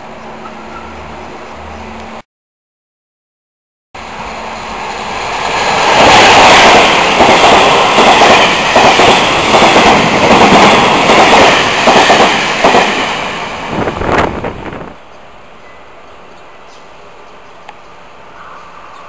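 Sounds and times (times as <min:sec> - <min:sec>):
train rushing past: 0:04.0 - 0:16.3.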